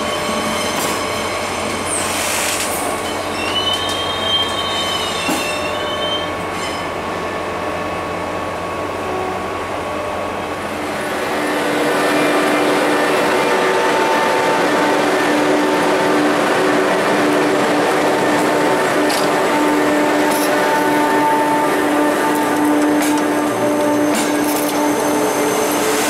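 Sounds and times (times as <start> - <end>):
train rolling on rails: 0.0 - 26.0
high-pitched wheel squeal: 3.3 - 6.8.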